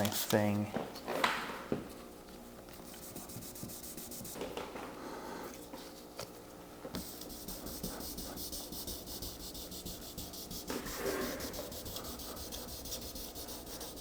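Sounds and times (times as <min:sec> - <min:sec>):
sandpaper rubbing wet surface: 0:07.4 - 0:14.0.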